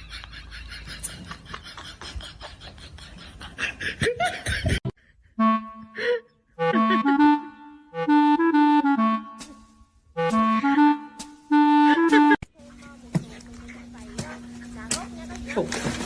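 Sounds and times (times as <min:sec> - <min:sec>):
woodwind melody: 0:05.3 - 0:12.4.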